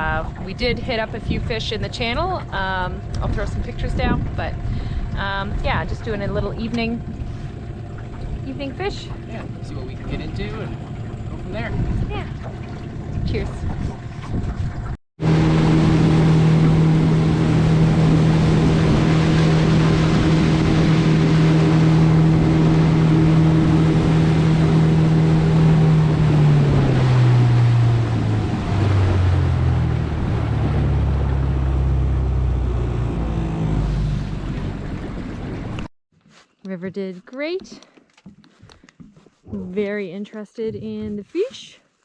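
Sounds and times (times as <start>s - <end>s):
outboard motor running: 0.0s - 35.9s
water rushing past: 3.4s - 35.9s.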